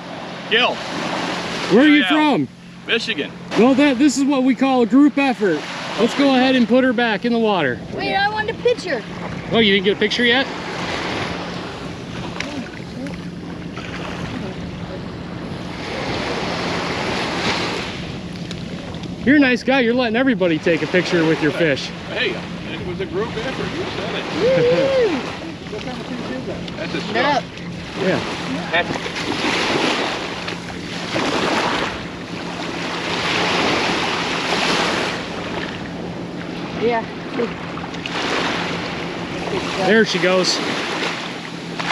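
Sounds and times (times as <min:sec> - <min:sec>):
ocean surf washing onto beach: 0:00.0 - 0:41.9.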